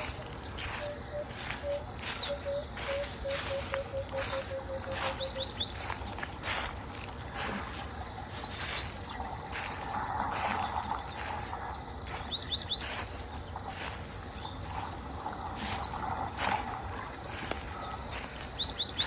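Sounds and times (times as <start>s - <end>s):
high bird chirps: 0.0s - 7.0s
insects chirping: 0.0s - 19.0s.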